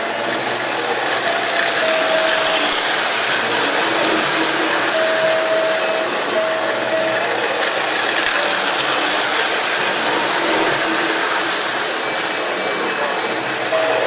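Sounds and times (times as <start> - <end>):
train clattering and whirring: 0.0 - 14.0.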